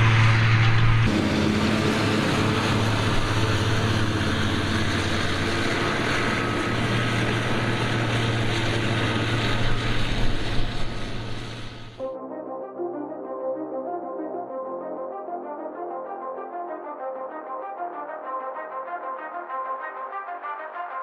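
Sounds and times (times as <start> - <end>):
forage harvester engine drone: 0.0 - 12.0.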